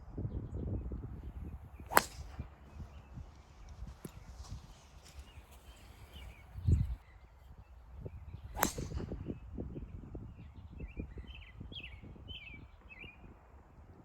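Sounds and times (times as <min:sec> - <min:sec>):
birds chirping: 0:01.2 - 0:13.3
golf club striking ball: 0:01.8 - 0:02.8, 0:08.6 - 0:09.2.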